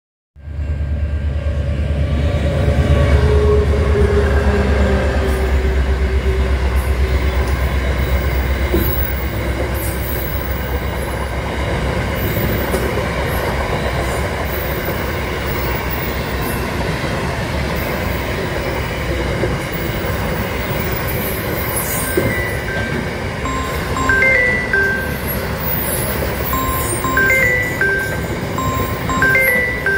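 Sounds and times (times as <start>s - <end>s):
train rumbling and rattling past: 0.4s - 29.9s
high wheel squeals: 19.8s - 24.2s.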